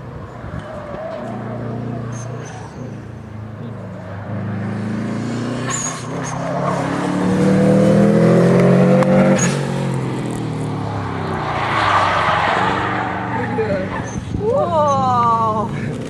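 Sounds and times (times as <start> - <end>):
car engine revving hard: 4.2 - 14.0.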